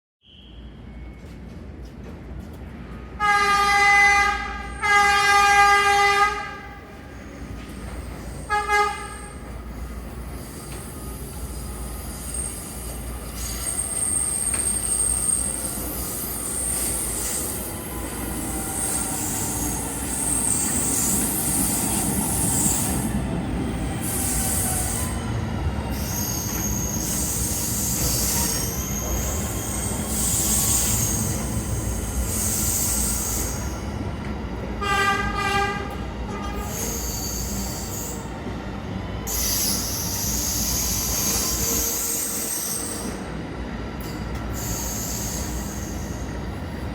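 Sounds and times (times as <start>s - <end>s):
train rumbling past: 0.5s - 46.9s
train horn blasts: 3.1s - 6.9s, 8.4s - 9.5s, 34.8s - 36.8s
high-pitched wheel squeal: 25.9s - 33.7s.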